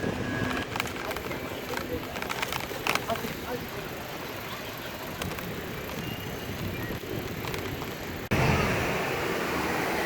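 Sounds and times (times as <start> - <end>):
outdoor background noise: 0.0 - 10.0
loud rushing noise: 8.3 - 10.0.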